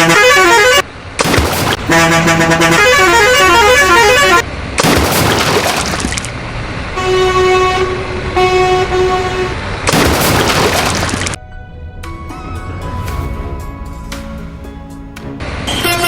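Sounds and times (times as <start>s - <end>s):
vehicle horn blasts: 0.0s - 0.8s, 1.8s - 4.4s, 7.0s - 9.6s
rushing noise bursts: 7.6s - 16.0s
background music: 11.4s - 16.0s.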